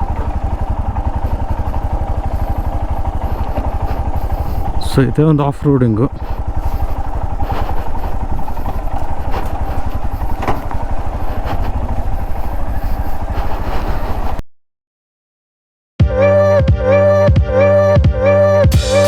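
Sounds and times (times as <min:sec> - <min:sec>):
knocks and rattles from motorcycle: 0:00.0 - 0:14.4
motorcycle engine running: 0:00.0 - 0:14.4, 0:18.7 - 0:19.0.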